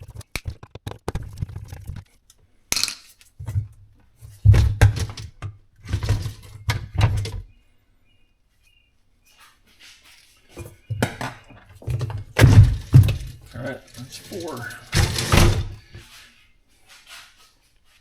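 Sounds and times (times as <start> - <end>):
hard parts clunking and clinking: 2.7 - 7.5, 10.6 - 16.1.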